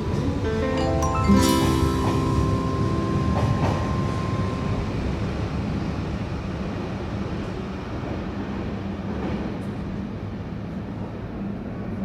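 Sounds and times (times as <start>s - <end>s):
held music note: 0.0s - 6.0s.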